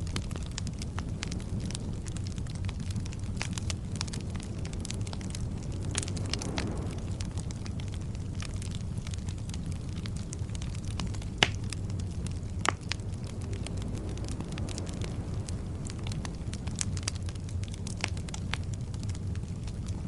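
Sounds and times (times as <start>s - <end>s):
wood logs burning: 0.0s - 20.0s.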